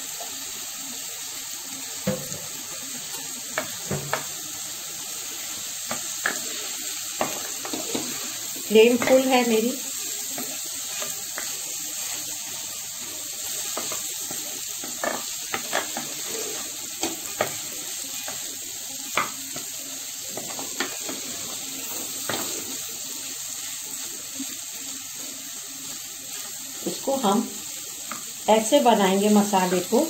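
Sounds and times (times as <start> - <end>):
food sizzling in a pan: 0.0 - 30.0
spatula scraping and tapping pan: 3.5 - 4.4, 5.8 - 9.5, 10.2 - 12.2, 13.6 - 18.5, 19.1 - 19.7, 20.3 - 22.7, 28.0 - 28.3.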